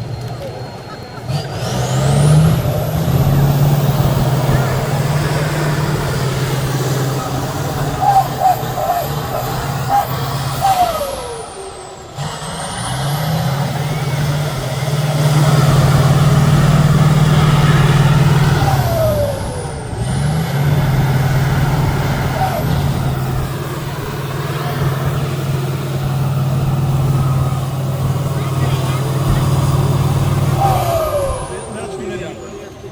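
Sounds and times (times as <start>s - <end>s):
diesel truck engine revving: 0.0s - 32.9s
short falling whistle: 4.6s - 12.0s.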